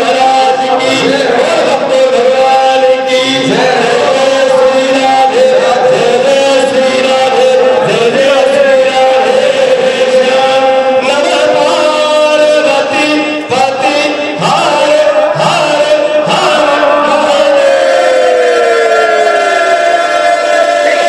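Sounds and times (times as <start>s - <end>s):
group singing devotional song: 0.0s - 19.1s
musical accompaniment: 0.2s - 8.7s.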